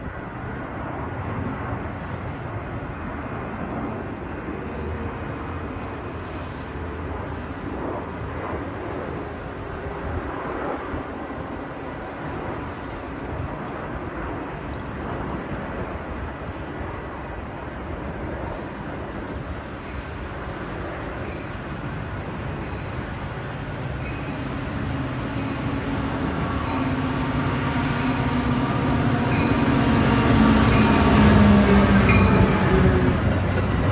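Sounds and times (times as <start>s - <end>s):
train rumble approaching: 18.5s - 33.9s.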